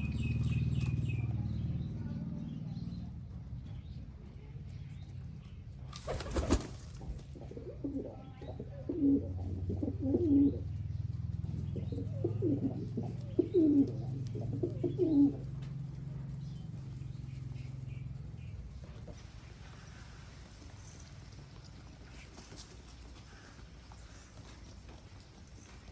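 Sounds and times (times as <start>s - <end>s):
pigeons cooing: 6.0s - 18.5s.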